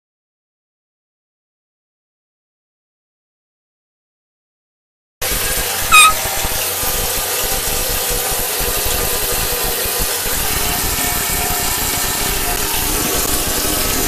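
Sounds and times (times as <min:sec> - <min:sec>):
running water from tap: 0:05.2 - 0:14.0.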